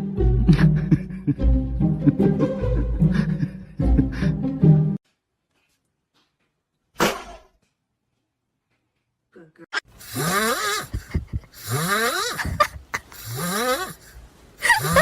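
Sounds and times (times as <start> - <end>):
loud raspy snoring: 10.0 - 12.6, 13.2 - 14.1.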